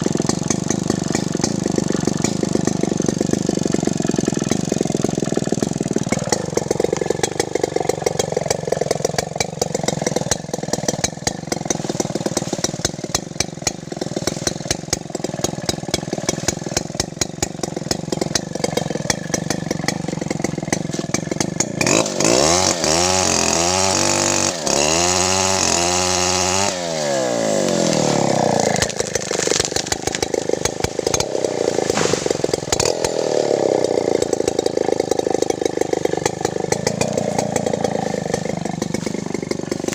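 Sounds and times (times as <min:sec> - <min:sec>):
chainsaw running with rapid ticking: 0:00.0 - 0:39.9.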